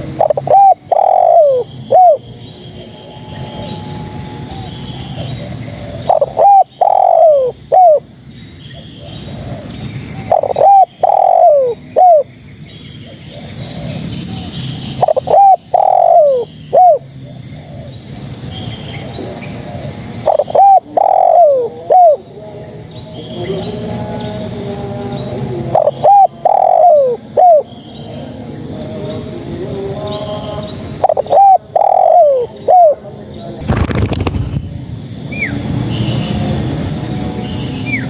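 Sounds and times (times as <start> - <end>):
dove cooing: 0.0 - 2.2, 3.9 - 8.1, 8.8 - 12.3, 14.3 - 17.0, 20.2 - 22.3, 25.6 - 27.7, 30.9 - 33.0.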